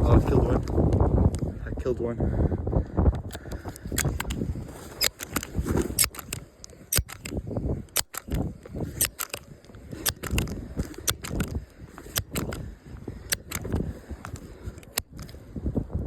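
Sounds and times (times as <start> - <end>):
sharp crackling clicks: 3.2 - 15.4.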